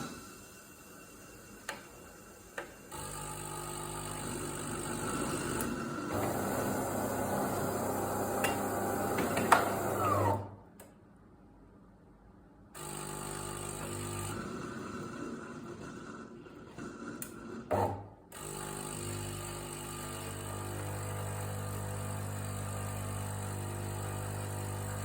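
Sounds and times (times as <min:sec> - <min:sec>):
coffee machine humming and rattling: 0:00.9 - 0:10.5, 0:12.8 - 0:25.0.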